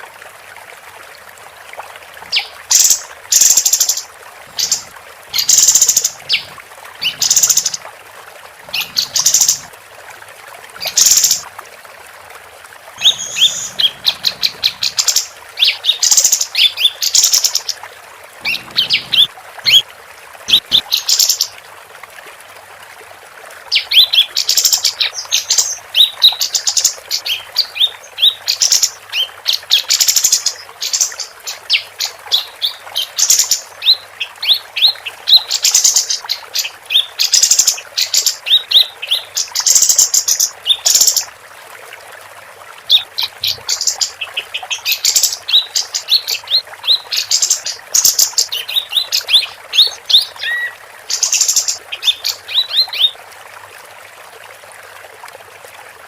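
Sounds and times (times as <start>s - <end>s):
bird singing rapid chirping trills: 13.0s - 17.7s.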